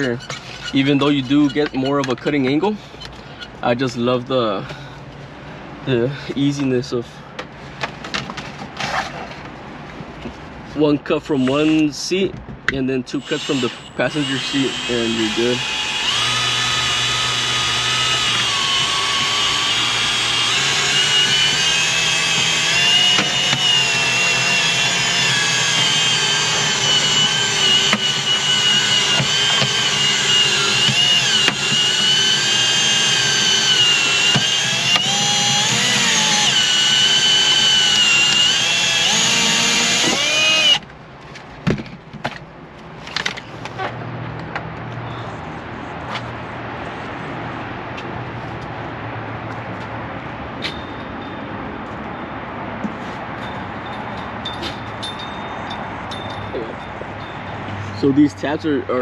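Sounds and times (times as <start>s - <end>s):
power drill motor whine: 13.2s - 40.8s.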